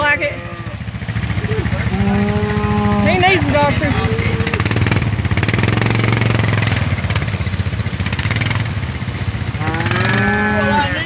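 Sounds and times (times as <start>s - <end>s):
cow mooing: 0.0s - 6.6s, 9.5s - 11.0s
four-wheeler engine running: 0.0s - 11.0s.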